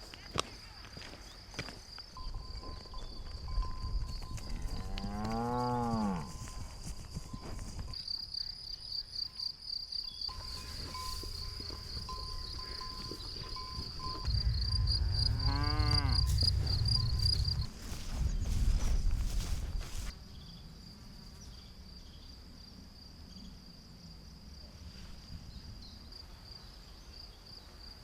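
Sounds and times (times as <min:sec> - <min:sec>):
insects trilling: 0:00.0 - 0:24.7
cow mooing: 0:04.8 - 0:06.3, 0:12.6 - 0:17.2.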